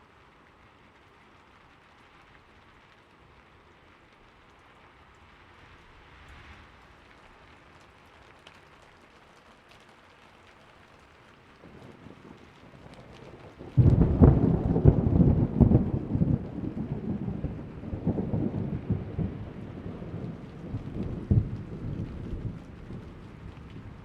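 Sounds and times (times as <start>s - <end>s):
faint rain hiss: 0.0s - 24.0s
raindrops ticking: 0.0s - 24.0s
thunder rumbling: 11.6s - 24.0s.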